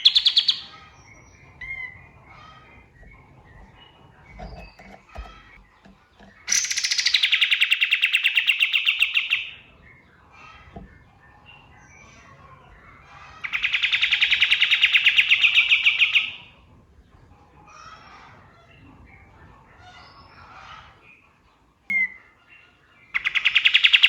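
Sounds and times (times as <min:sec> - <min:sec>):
songbird trilling: 0:00.0 - 0:09.7
faint bird chirps: 0:21.9 - 0:24.0.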